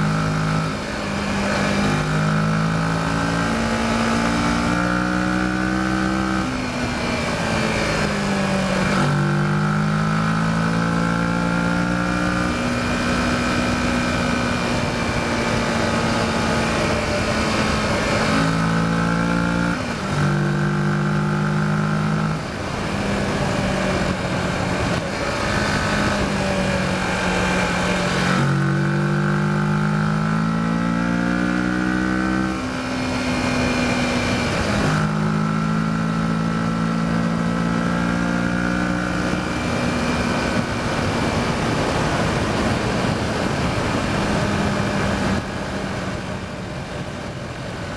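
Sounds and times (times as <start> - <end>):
motorcycle engine revving: 0.0 - 47.9
wind noise: 39.4 - 47.9.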